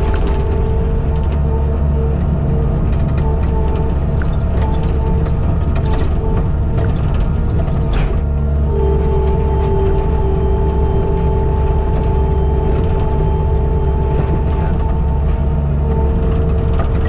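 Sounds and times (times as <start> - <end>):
skid steer engine humming: 0.0 - 17.0
high whine: 8.6 - 17.0.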